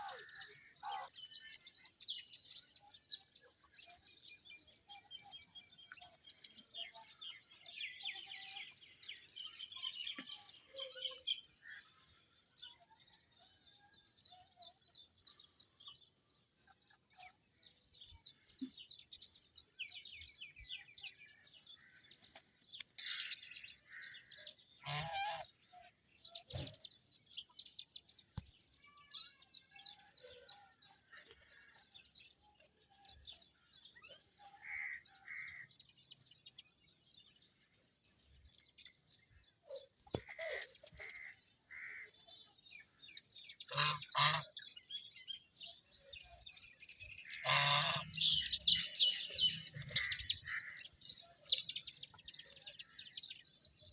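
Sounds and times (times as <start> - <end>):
small birds chirping: 0.0 - 53.9
duck quacking: 43.7 - 44.5, 47.4 - 48.2.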